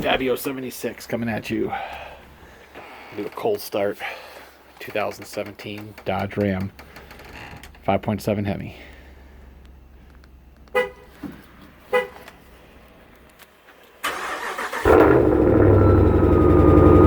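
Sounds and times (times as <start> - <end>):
car horn chirps: 10.7 - 11.1, 11.9 - 12.3
engine running: 14.1 - 17.0.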